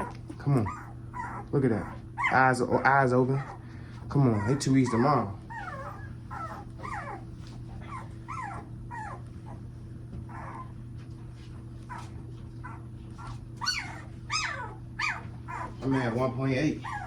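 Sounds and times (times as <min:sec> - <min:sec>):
puppies whining and yelping: 0:00.0 - 0:11.0, 0:11.7 - 0:17.0.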